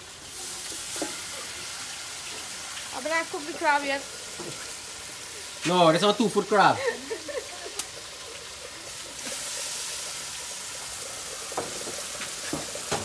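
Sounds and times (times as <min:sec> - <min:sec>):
chicken sizzling in a pot: 0:00.0 - 0:13.0.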